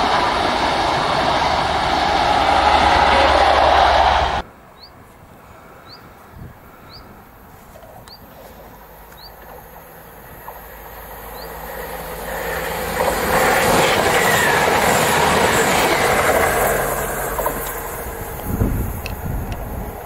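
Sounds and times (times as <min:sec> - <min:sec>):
train passing at speed: 0:00.0 - 0:20.0
bird chirps: 0:04.8 - 0:05.0, 0:05.8 - 0:06.1, 0:09.1 - 0:09.4, 0:11.3 - 0:11.6.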